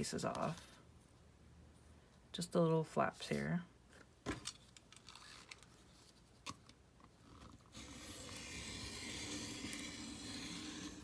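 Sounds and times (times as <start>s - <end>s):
knife scraping through cardboard: 7.7s - 11.0s.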